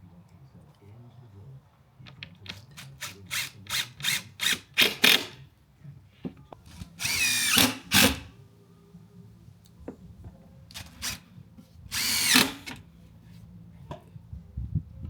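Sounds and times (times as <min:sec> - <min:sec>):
power tool bursts with whine: 0:12.0 - 0:12.8.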